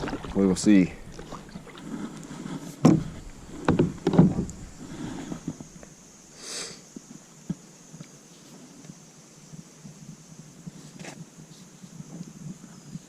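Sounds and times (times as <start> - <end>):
dull knocks and handling: 2.8 - 5.9.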